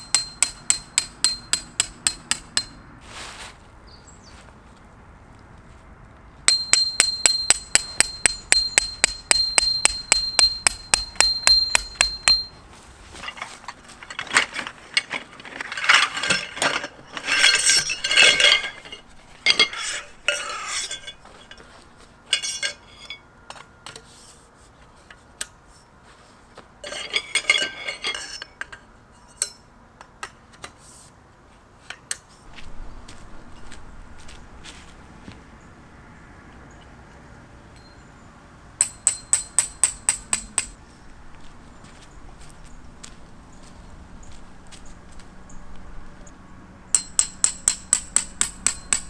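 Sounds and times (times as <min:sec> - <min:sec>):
hammer striking metal peg: 0:00.0 - 0:02.8, 0:06.5 - 0:12.6, 0:38.8 - 0:40.8, 0:47.0 - 0:49.0
gear clattering and knocking: 0:06.5 - 0:21.6.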